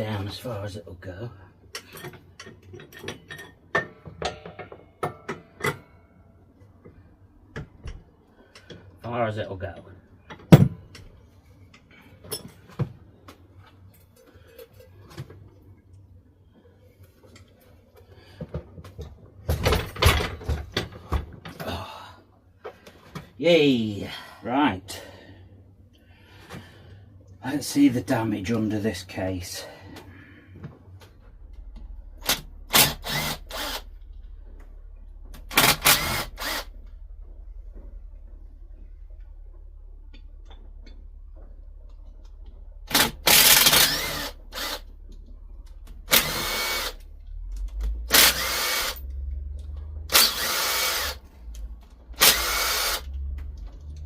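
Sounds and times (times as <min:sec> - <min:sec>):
steady low hum: 0:00.0 - 0:54.0
power driver spinning: 0:31.7 - 0:34.6, 0:35.2 - 0:37.1, 0:42.9 - 0:45.1, 0:45.8 - 0:49.2, 0:50.1 - 0:54.0.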